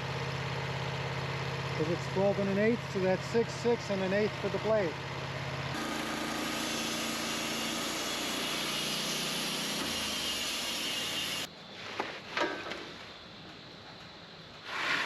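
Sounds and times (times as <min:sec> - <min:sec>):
sawmill engine running: 0:00.0 - 0:11.5.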